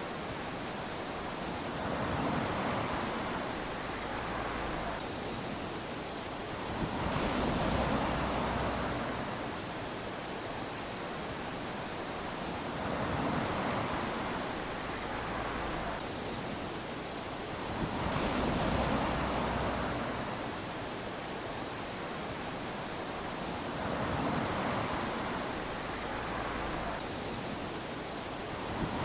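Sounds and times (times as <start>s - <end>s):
small waves lapping on sand: 0.0s - 29.0s.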